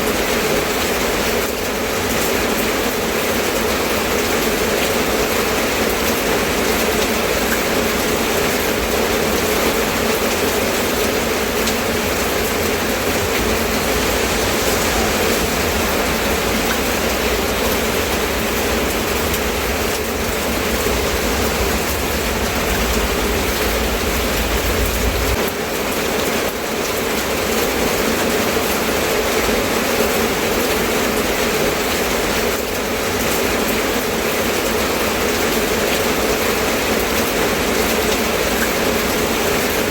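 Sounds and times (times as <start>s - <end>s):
rain falling: 0.0s - 39.9s
low rumble: 10.3s - 25.5s.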